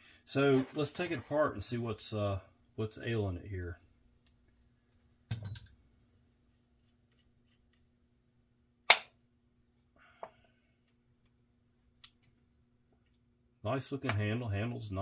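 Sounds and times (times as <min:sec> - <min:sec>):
faint steady hum: 0:00.0 - 0:15.0
sharp loud click: 0:08.9 - 0:09.1.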